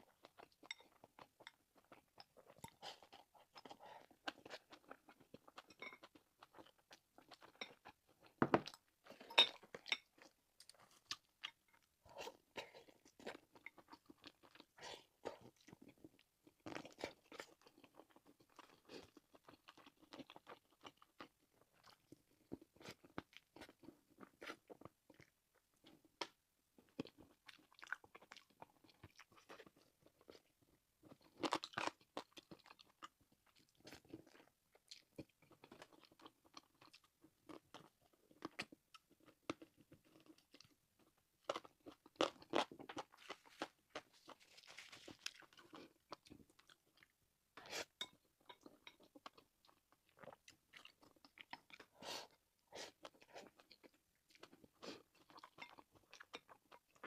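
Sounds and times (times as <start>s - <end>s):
crunchy chewing of food: 0.0s - 57.0s.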